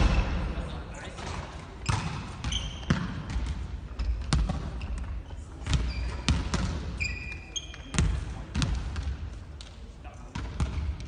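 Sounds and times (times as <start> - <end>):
volleyballs smacking and bouncing: 1.2 - 7.0, 7.7 - 11.0
shoes squeaking on floor: 1.8 - 3.0, 5.8 - 6.3, 7.0 - 7.9.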